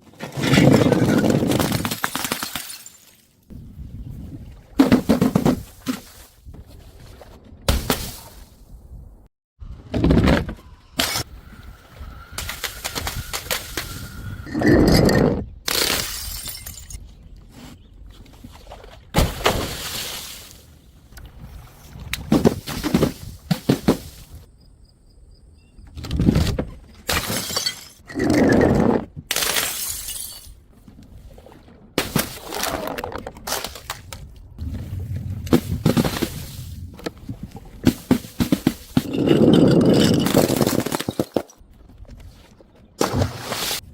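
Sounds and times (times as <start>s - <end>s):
glass bottles smashing: 1.7s - 3.2s, 15.7s - 17.0s, 27.1s - 28.0s, 29.4s - 30.6s, 39.0s - 41.5s
glass shards clinking: 16.0s - 17.0s, 29.6s - 30.6s, 39.0s - 41.4s.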